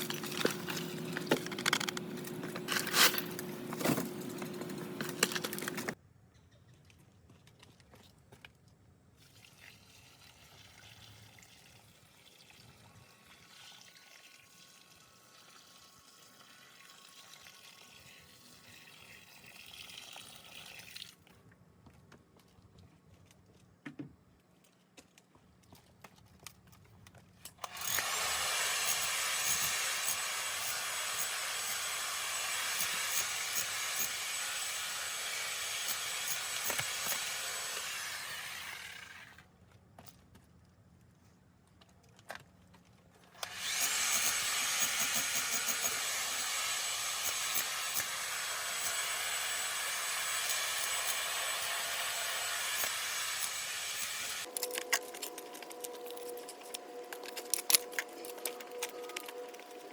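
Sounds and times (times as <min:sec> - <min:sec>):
power tool whining and grinding: 0:27.6 - 0:39.4, 0:43.4 - 0:59.9.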